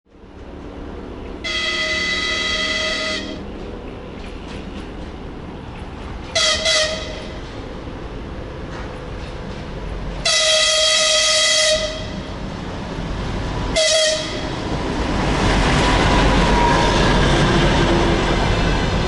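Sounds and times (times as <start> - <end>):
train rumbling: 0.1 - 19.0
locomotive horn blasts: 1.4 - 3.4, 6.3 - 7.4, 10.2 - 12.4, 13.8 - 14.6.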